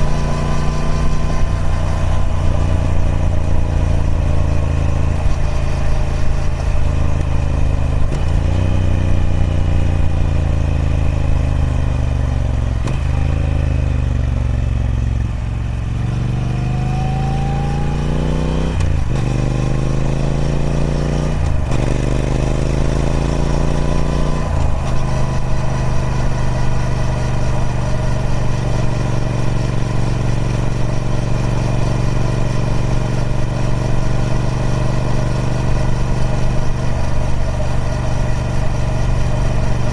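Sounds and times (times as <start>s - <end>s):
motorcycle engine shifting gears: 0.0s - 39.9s.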